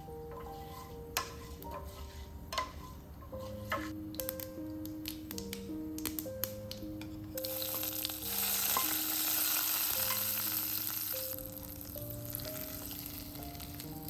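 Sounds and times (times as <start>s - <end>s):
food sizzling in a frying pan: 7.4s - 14.0s.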